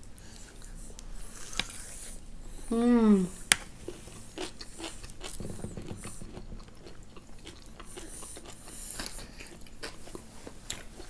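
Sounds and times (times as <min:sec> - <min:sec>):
chewing with wet clicks: 0:04.3 - 0:11.0.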